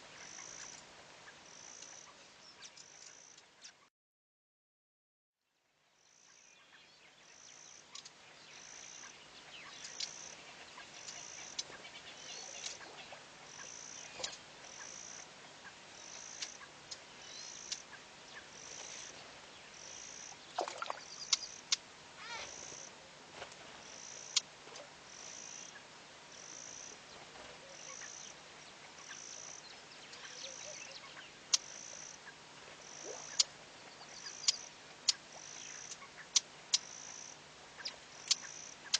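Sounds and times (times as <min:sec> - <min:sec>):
bird chirps and clicks: 0:01.8 - 0:03.8, 0:07.9 - 0:08.2, 0:09.7 - 0:10.3, 0:11.0 - 0:12.9, 0:13.6 - 0:15.0, 0:16.2 - 0:18.0, 0:20.6 - 0:21.8, 0:24.1 - 0:24.5, 0:30.1 - 0:32.4, 0:33.0 - 0:38.9.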